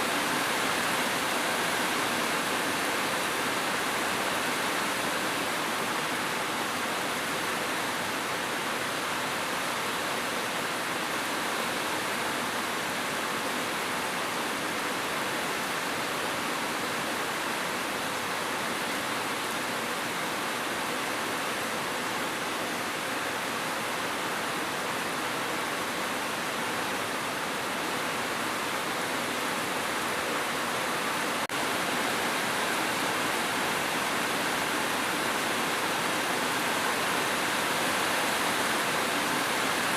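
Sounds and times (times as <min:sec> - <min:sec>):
steady falling rain: 0:00.0 - 0:39.9.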